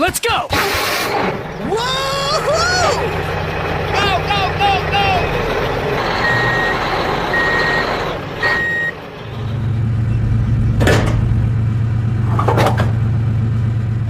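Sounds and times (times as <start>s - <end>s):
truck engine humming: 0.7s - 14.0s
truck reversing alarm beeping: 0.9s - 10.8s.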